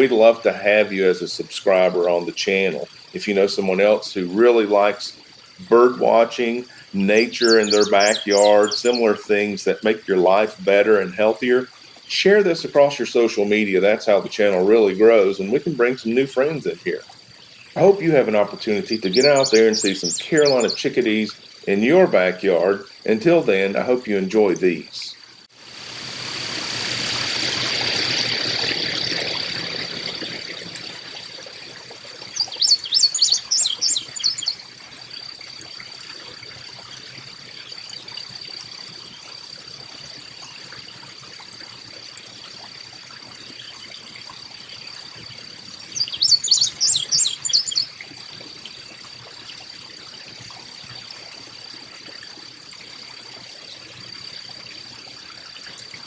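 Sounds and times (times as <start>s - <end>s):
chickadee chattering calls: 6.2s - 9.3s, 17.7s - 21.0s, 32.3s - 34.6s, 45.9s - 47.9s
rushing noise: 25.6s - 31.2s
steady high-pitched hum: 25.6s - 35.9s.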